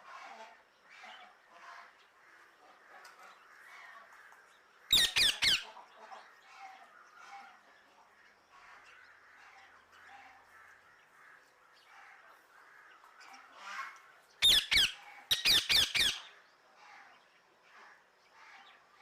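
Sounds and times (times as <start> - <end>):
parrot squawking: 4.9 - 5.7, 14.4 - 16.3.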